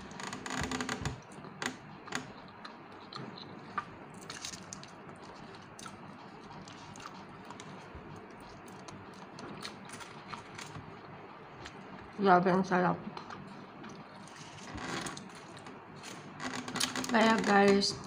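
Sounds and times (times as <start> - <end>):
person chewing food: 1.3 - 12.2, 13.1 - 16.4.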